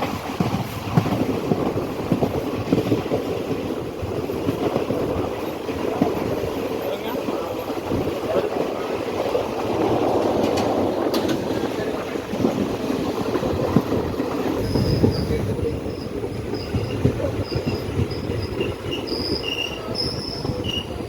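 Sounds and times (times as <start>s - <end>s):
train rumbling on rails: 0.0s - 21.0s
high-pitched wheel squeals: 14.6s - 21.0s.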